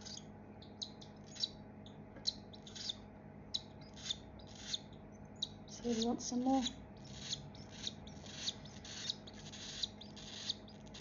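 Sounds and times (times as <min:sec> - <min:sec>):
chicks giving high begging chirps: 0:00.0 - 0:11.0.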